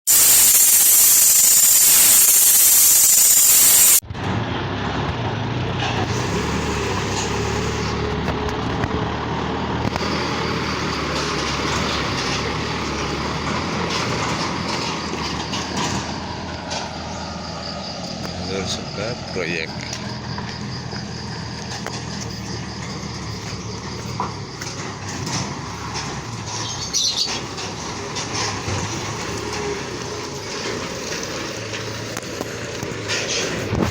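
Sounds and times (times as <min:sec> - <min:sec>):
loud even hiss: 0:00.0 - 0:04.0
truck engine running: 0:00.1 - 0:33.9.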